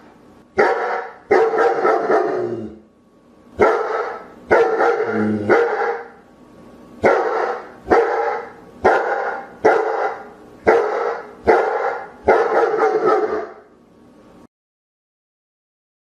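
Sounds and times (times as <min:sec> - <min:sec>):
dog barking deeply: 0:00.6 - 0:02.8, 0:03.6 - 0:06.2, 0:07.0 - 0:13.7.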